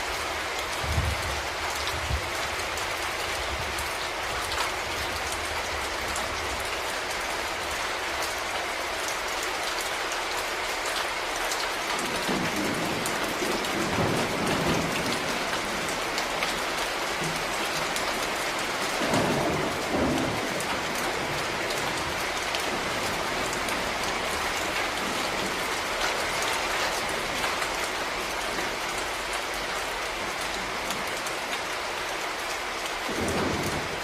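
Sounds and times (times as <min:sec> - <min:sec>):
rain drops ticking: 0:00.0 - 0:34.0
low rumble of thunder: 0:00.7 - 0:06.7, 0:12.0 - 0:28.0, 0:33.0 - 0:34.0.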